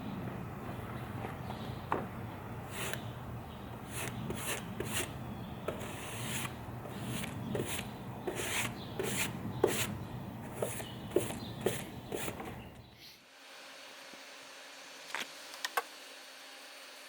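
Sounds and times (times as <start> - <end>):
hand scraping across wood: 2.7 - 3.2, 3.8 - 12.6.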